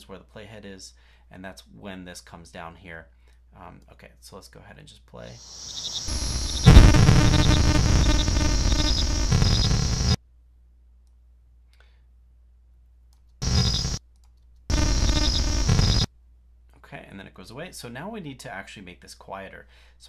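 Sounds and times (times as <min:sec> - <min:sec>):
synthesized sci-fi beam sound: 0:06.1 - 0:10.2, 0:13.4 - 0:14.0, 0:14.7 - 0:16.1.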